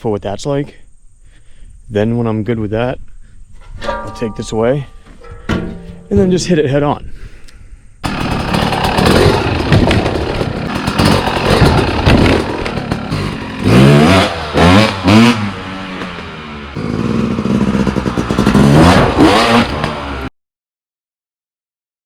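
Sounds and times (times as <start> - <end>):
clattering knocks over obstacle: 3.7 - 6.3
dirt bike engine revving: 8.0 - 20.3.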